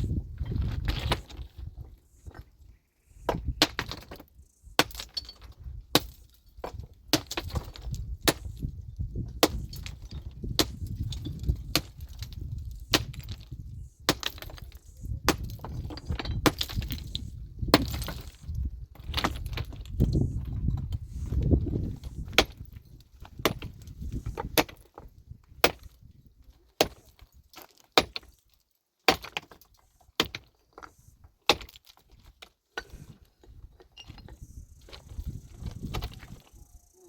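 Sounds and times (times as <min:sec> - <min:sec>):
metal tool striking rock: 0:04.8 - 0:08.7, 0:09.3 - 0:20.2, 0:23.4 - 0:26.0, 0:26.8 - 0:28.4, 0:29.1 - 0:33.1.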